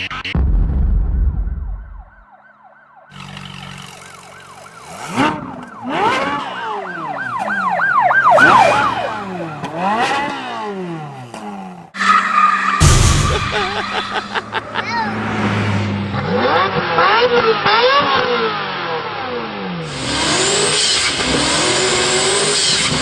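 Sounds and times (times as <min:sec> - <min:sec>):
emergency sirens wailing: 0:01.7 - 0:10.9, 0:11.9 - 0:18.9.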